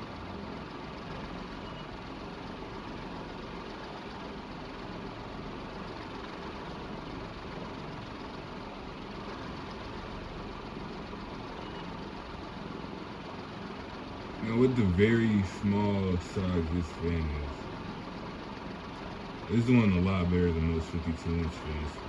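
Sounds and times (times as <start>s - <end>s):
fan blades rushing air: 14.2s - 22.0s.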